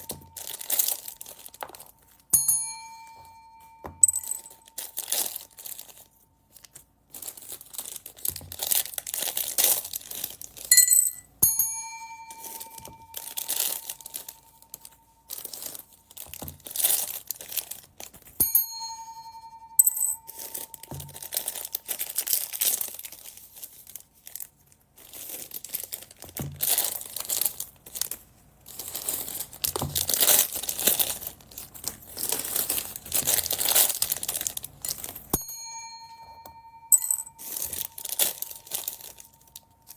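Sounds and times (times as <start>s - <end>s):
bell-like ringing tone: 0.0s - 1.4s, 2.3s - 5.9s, 10.7s - 15.8s, 18.4s - 22.0s, 35.4s - 39.9s
plastic bags crinkling: 0.0s - 2.3s, 4.5s - 10.7s, 12.4s - 18.4s, 20.3s - 35.3s, 37.4s - 39.9s.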